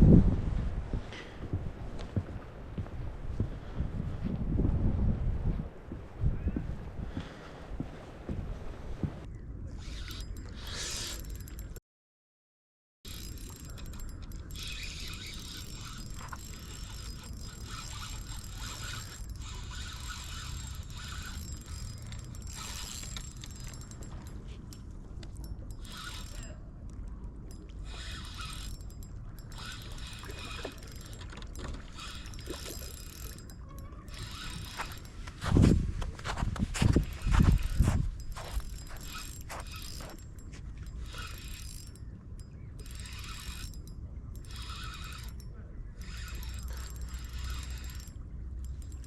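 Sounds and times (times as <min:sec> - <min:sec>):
wind rumble on microphone: 0:00.0 - 0:10.7, 0:31.9 - 0:49.0
fishing reel clicking whirr: 0:09.8 - 0:11.8, 0:13.1 - 0:35.5, 0:37.0 - 0:49.0.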